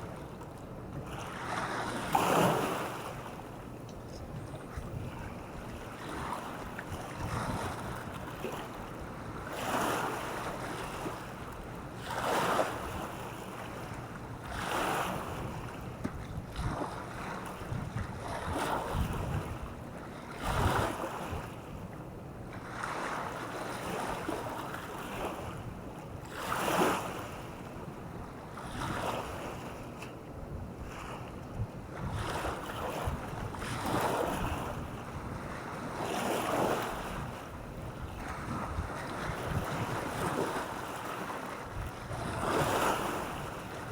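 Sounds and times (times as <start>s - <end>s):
waves breaking on beach: 1.0s - 3.6s, 4.4s - 21.7s, 22.6s - 27.8s, 28.5s - 30.0s, 30.8s - 43.9s
wind on microphone: 4.1s - 9.6s, 14.4s - 21.8s, 30.4s - 43.9s.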